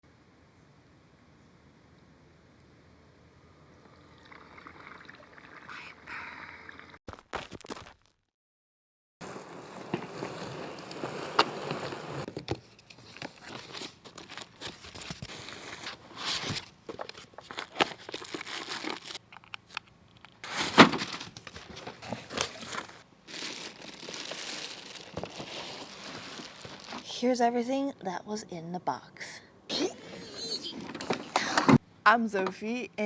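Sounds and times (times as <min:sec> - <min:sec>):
plastic packaging crinkling: 0:13.0 - 0:27.2.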